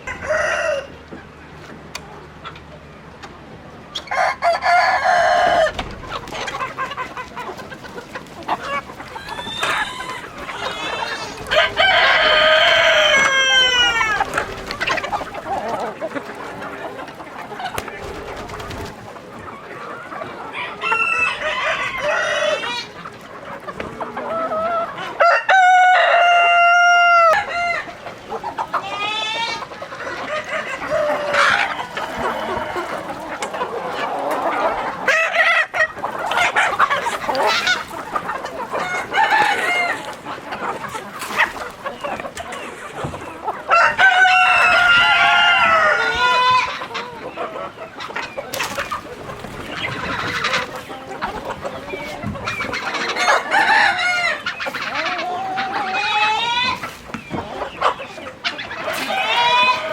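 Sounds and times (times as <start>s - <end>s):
chickens clucking: 0.0s - 59.9s
rooster crowing: 9.2s - 14.2s, 25.2s - 27.9s.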